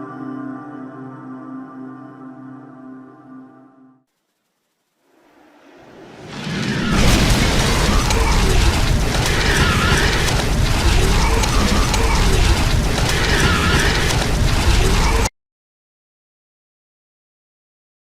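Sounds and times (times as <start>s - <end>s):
rushing whirlwind with rumble: 5.0s - 15.3s.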